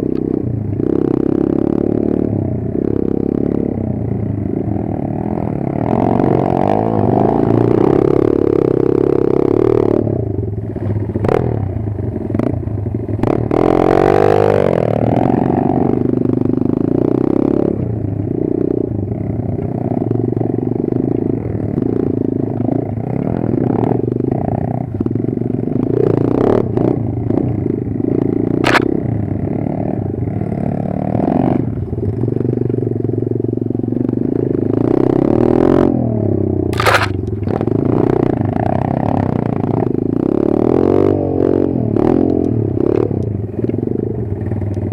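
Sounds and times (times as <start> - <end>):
motorbike engine running: 0.0 - 40.1
clattering and scraping: 36.8 - 37.6.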